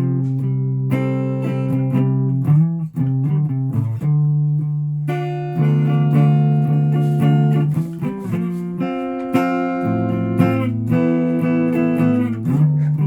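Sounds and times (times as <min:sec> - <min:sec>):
guitar playing: 0:00.0 - 0:13.0.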